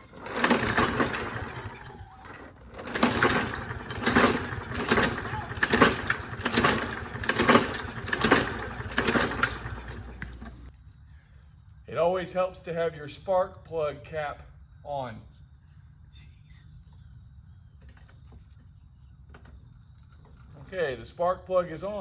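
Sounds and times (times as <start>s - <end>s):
mower engine turning over: 0.0s - 10.7s.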